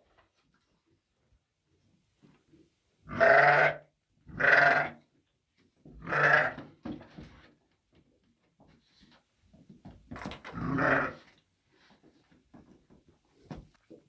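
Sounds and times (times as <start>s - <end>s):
livestock bleating: 3.1s - 5.0s, 6.0s - 6.6s, 10.5s - 11.3s.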